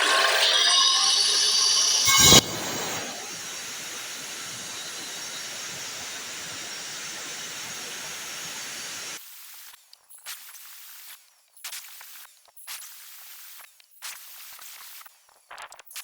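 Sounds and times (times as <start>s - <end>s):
steady hiss: 1.4s - 9.2s.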